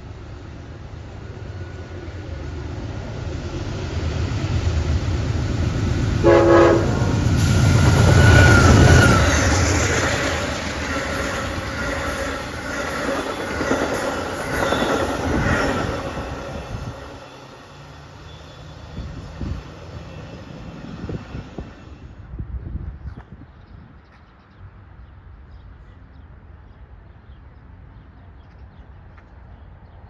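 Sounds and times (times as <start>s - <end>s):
train rumbling past: 0.0s - 23.0s
train horn blast: 6.2s - 9.6s.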